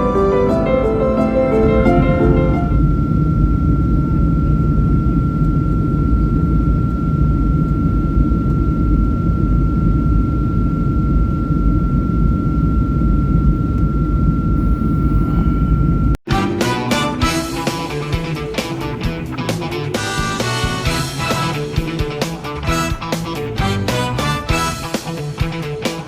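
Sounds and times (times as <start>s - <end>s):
vehicle engine rumble: 1.2s - 26.0s
high-pitched tone: 14.3s - 25.2s.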